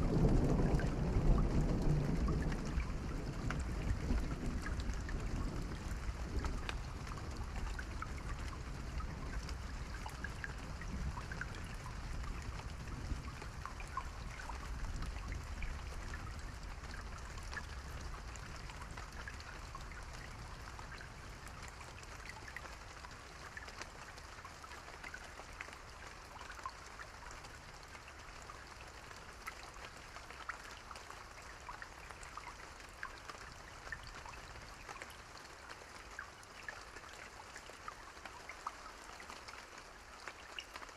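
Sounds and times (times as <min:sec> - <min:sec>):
distant thunder rumble: 0:00.0 - 0:06.5
rain drops pattering: 0:00.0 - 0:40.9.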